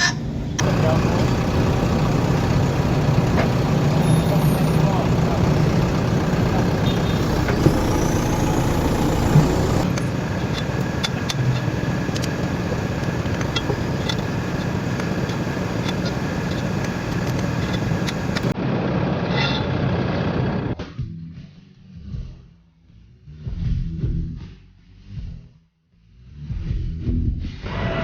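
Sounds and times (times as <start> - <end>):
faint clicks: 0.6 - 18.5
engine running: 0.6 - 19.0.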